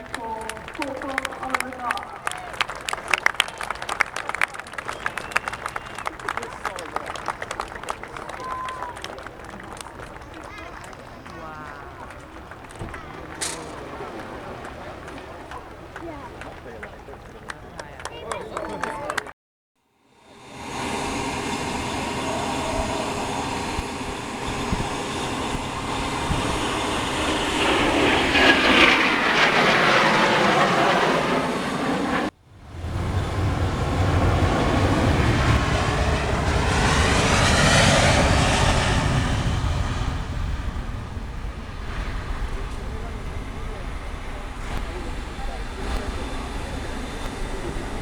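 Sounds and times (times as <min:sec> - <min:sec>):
aircraft engine flying past: 0:00.0 - 0:19.3, 0:20.0 - 0:48.0.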